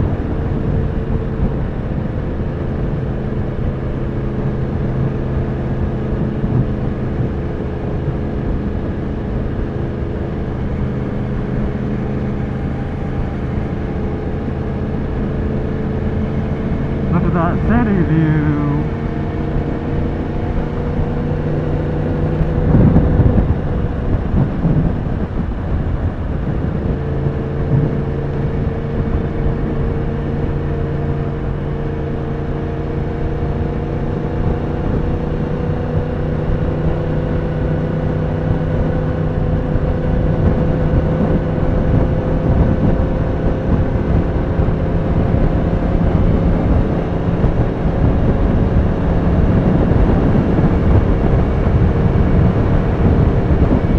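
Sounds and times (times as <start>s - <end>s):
wind noise: 22.0s - 29.8s, 37.9s - 53.9s.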